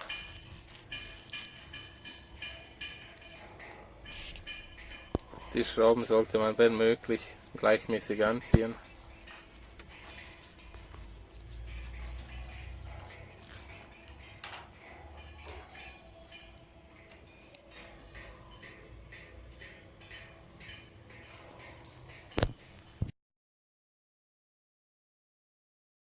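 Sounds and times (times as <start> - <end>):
metallic clicks and clinks: 4.1 - 12.7.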